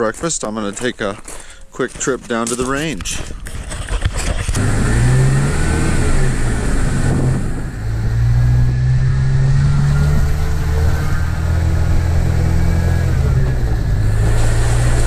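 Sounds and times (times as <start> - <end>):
clicks and rustles: 0.3 - 4.6
vehicle engine accelerating: 3.7 - 15.0.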